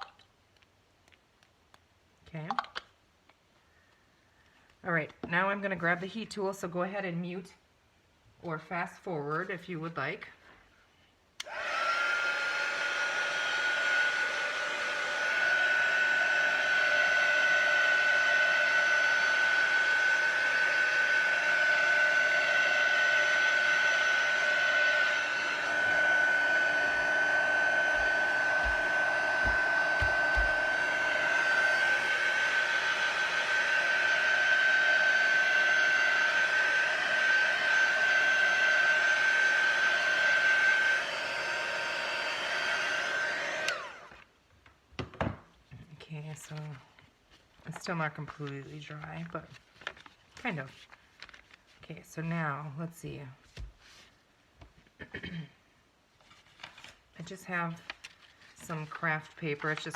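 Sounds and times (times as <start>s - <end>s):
heat tool fan whirring: 11.4s - 44.2s.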